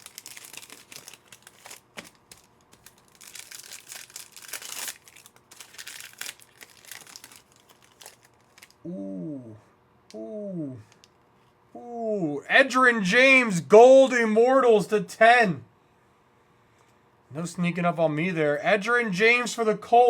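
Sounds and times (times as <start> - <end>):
wrapper crinkling and tearing: 0.0 - 8.8
man talking: 11.8 - 15.7, 17.3 - 20.0.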